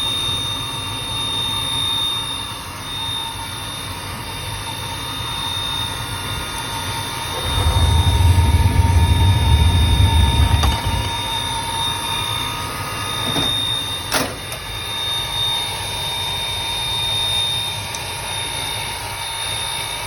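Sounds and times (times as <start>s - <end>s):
oil burner squealing: 0.0s - 20.0s
low rumble: 7.1s - 13.0s.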